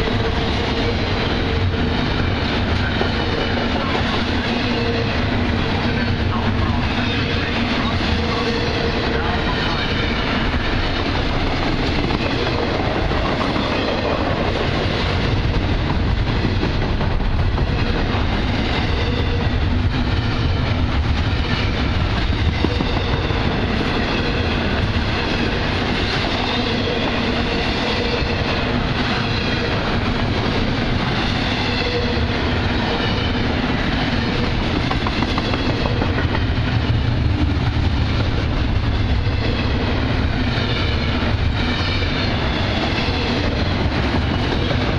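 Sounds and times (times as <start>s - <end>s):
freight train wheels rumbling: 0.0s - 44.9s.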